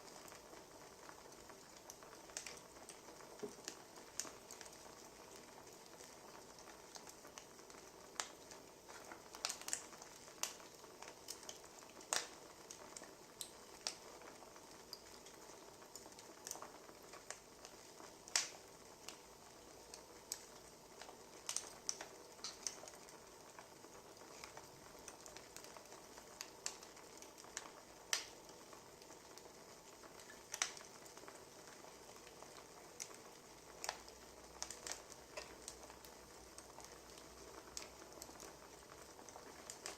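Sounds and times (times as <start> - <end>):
soft steady hiss: 0.0 - 39.9
wood fire popping and snapping: 0.0 - 39.9.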